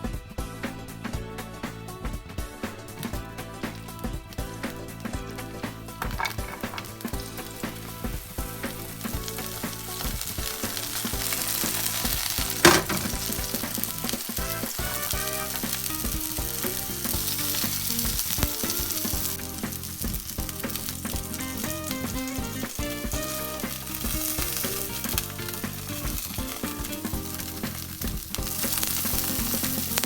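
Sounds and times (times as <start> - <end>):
vegetables sizzling in a pan: 2.9 - 30.0
stirring clicks and scrapes: 5.9 - 22.2.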